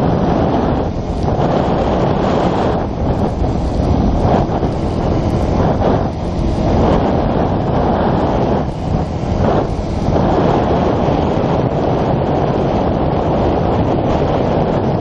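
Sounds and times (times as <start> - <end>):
motorcycle running: 0.0 - 15.0
road noise: 0.0 - 15.0
wind buffeting microphone: 0.0 - 15.0.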